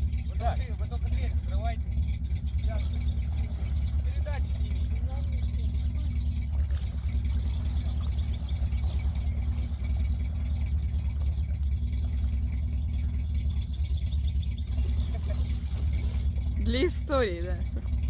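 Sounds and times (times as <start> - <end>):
car engine running at low revs: 0.0 - 18.0.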